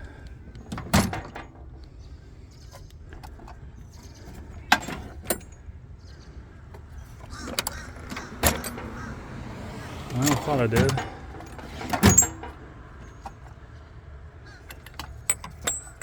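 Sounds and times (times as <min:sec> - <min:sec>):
metal tools clanking: 0:04.3 - 0:05.7, 0:07.2 - 0:13.6, 0:14.6 - 0:16.0.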